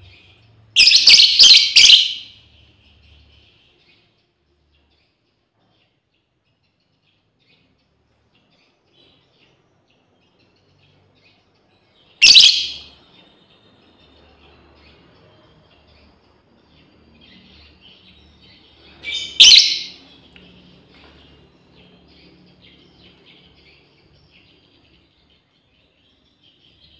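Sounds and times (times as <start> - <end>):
faint bird chirping: 0.0 - 26.9
lovebird shrill call: 0.8 - 2.3, 12.2 - 12.9, 19.0 - 20.0.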